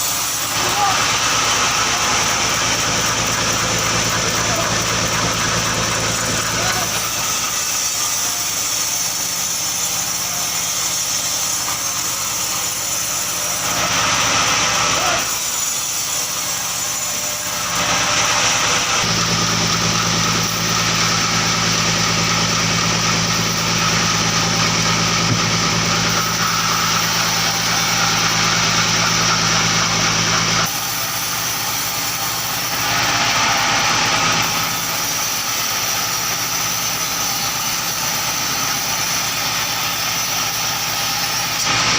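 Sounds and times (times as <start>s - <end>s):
engine-powered wood saw running: 0.0s - 41.9s.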